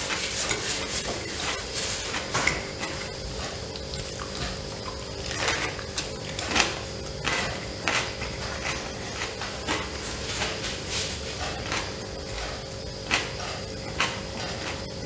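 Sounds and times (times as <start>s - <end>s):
person chewing food: 2.8s - 10.6s.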